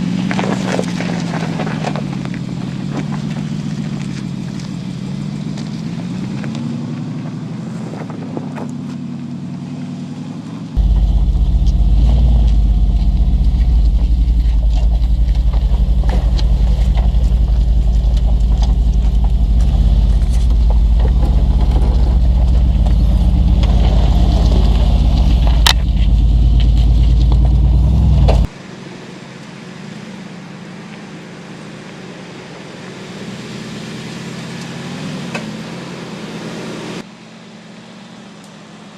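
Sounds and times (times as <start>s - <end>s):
car engine running: 0.0s - 38.9s
heavy low rumble: 10.8s - 28.6s.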